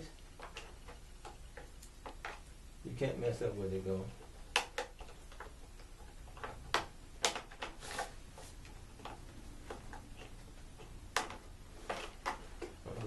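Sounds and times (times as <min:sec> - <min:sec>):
plastic parts clicking: 0:04.4 - 0:12.8.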